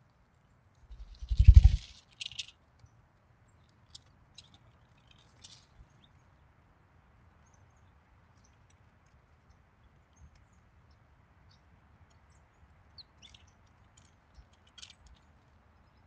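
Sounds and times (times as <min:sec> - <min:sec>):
small birds chirping: 0:00.9 - 0:02.5, 0:09.5 - 0:16.0.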